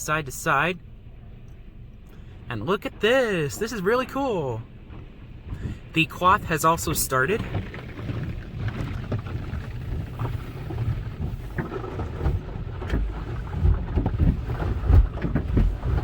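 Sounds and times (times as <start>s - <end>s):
car wash curtains slapping car: 6.1s - 16.0s.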